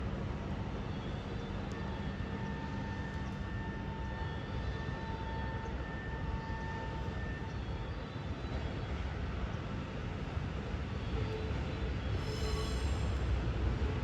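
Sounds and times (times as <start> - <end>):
train engine drone: 0.0 - 14.0
faint steady whine: 0.1 - 8.4.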